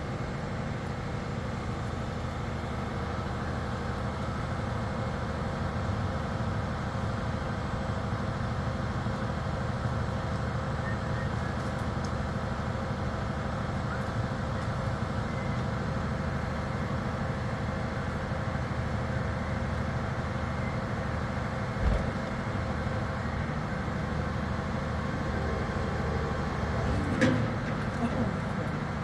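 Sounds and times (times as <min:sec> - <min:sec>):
truck engine running: 0:12.2 - 0:29.0.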